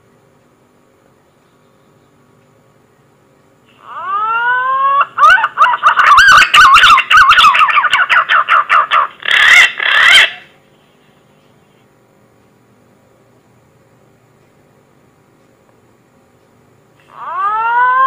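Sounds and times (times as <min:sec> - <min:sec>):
pigeon whistling call: 0:03.8 - 0:10.5.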